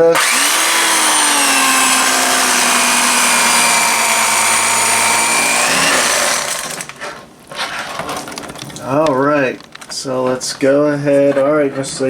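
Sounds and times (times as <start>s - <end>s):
electric carving knife running: 0.0s - 6.9s.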